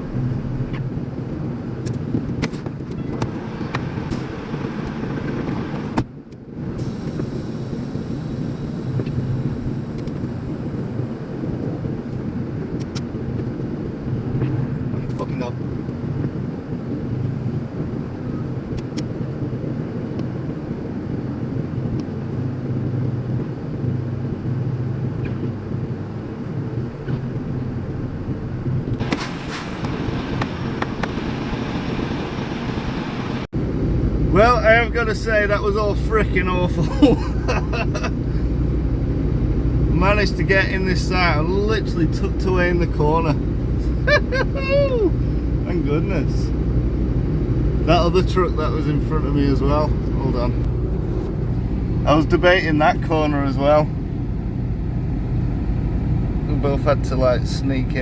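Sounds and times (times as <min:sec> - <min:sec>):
diesel truck engine running: 0:22.5 - 0:58.0
brief hiss: 0:29.0 - 0:33.5.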